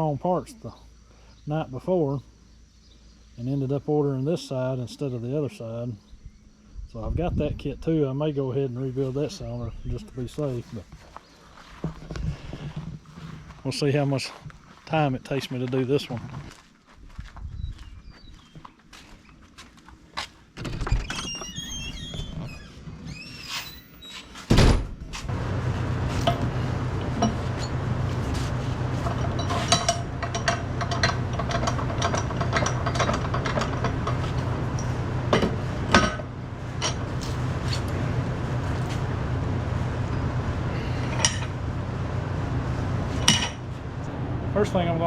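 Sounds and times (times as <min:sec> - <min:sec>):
squeaking slide and creak: 0:20.9 - 0:24.5, 0:27.3 - 0:30.0, 0:36.8 - 0:38.0
motor humming: 0:25.3 - 0:45.0.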